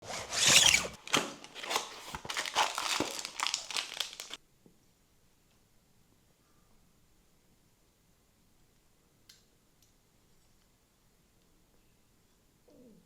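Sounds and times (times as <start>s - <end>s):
packaging crinkling and rustling: 0.0s - 4.4s.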